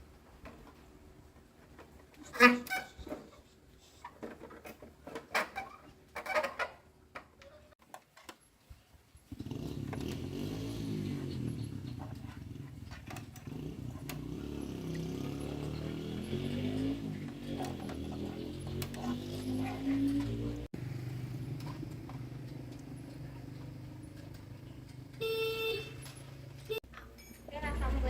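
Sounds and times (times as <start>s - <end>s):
engine revving: 9.3s - 26.8s.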